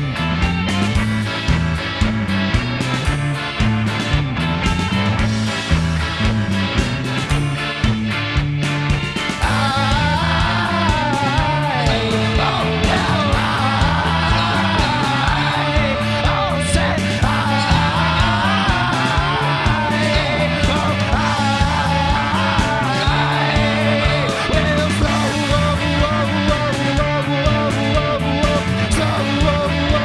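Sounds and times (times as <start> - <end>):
rock band playing: 0.0 - 30.0
person singing: 9.4 - 30.0.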